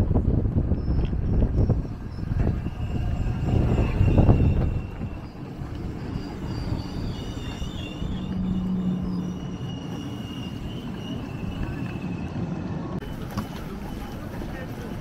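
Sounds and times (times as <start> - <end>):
train rumbling: 0.0 - 15.0
high-pitched squealing: 1.7 - 13.2.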